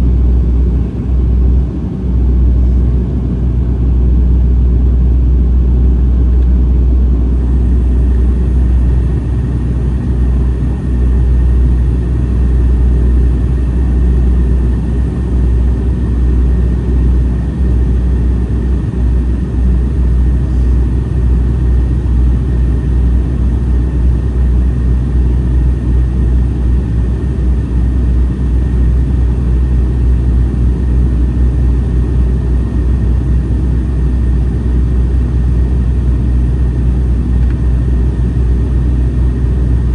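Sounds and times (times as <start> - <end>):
airliner engine and airflow rumble: 0.0 - 39.9
faint steady whine: 2.1 - 39.9.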